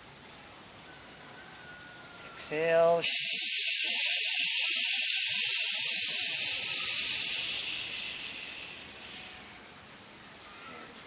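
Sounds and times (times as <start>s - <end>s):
person exhaling shh sound: 3.0s - 9.8s.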